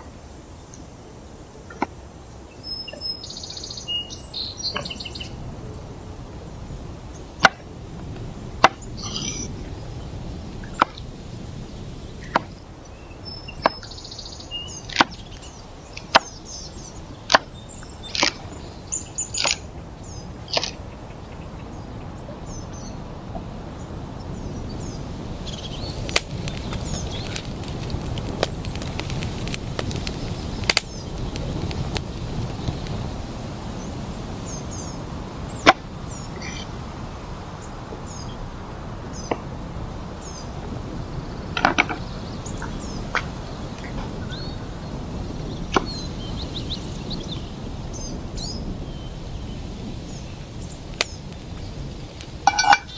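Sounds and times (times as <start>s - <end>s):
dense fine crackling: 3.8s - 13.0s, 25.8s - 33.5s, 50.3s - 52.9s.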